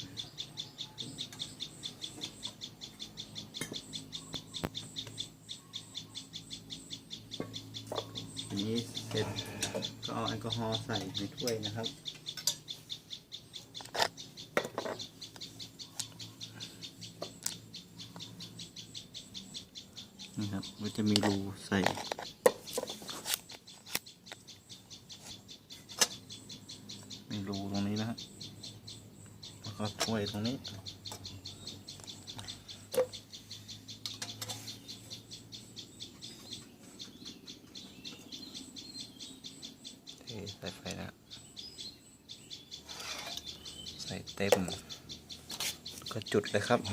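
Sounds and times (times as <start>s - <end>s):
rapid even chirping: 0.0s - 46.9s.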